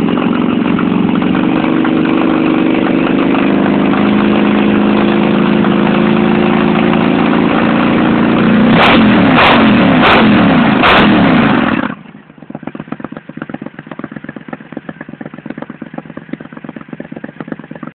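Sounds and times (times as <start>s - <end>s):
motorcycle engine revving: 0.0s - 17.9s.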